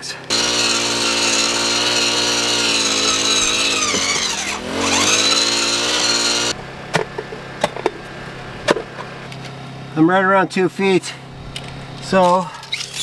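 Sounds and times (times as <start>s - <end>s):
earth auger engine running: 0.2s - 6.6s
drill bit grinding against rocks: 0.3s - 6.6s.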